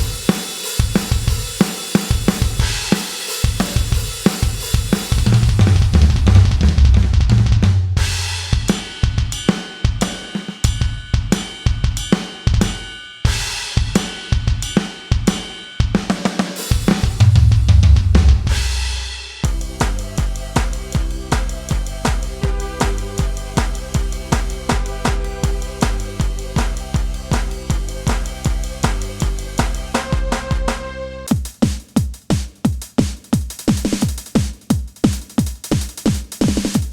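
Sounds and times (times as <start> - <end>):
electronic drum kit groove: 0.0 - 36.9
deep long-ringing low hits: 17.2 - 31.3.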